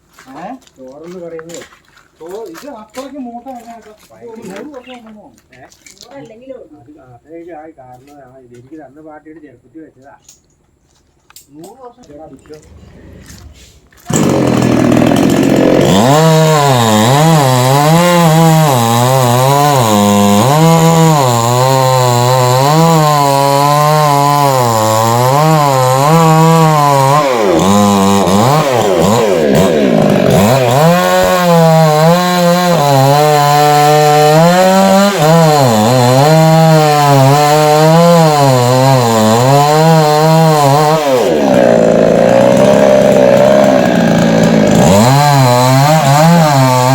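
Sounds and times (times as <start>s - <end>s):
chainsaw cutting wood: 12.2s - 46.9s.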